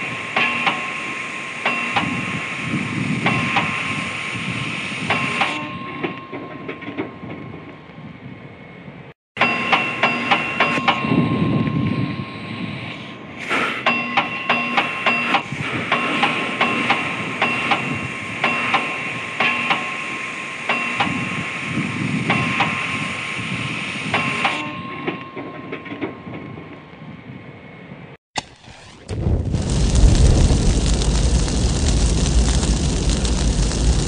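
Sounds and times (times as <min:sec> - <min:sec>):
hammer striking steel on anvil: 0:00.0 - 0:02.3, 0:05.0 - 0:07.3, 0:09.4 - 0:12.4, 0:13.8 - 0:21.3, 0:24.1 - 0:26.2.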